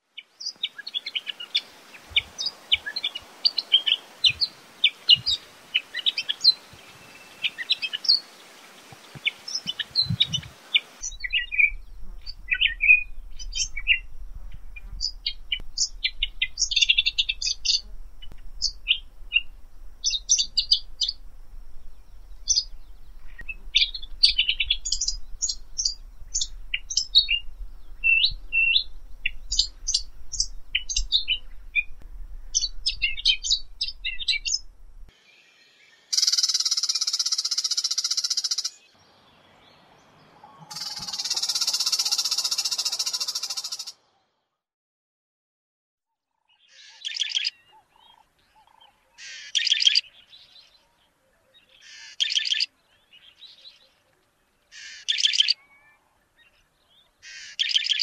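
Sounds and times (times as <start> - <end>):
background hiss: 0.0 - 44.2
scratchy bird call clusters: 36.1 - 38.8, 40.5 - 44.0, 48.1 - 50.1, 51.8 - 52.7, 54.7 - 55.6, 57.2 - 58.0.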